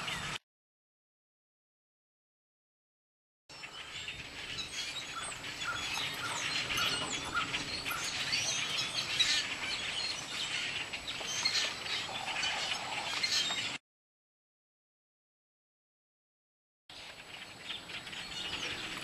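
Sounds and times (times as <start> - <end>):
flock of birds chirping: 0.0 - 0.4, 3.5 - 13.8, 16.9 - 19.0.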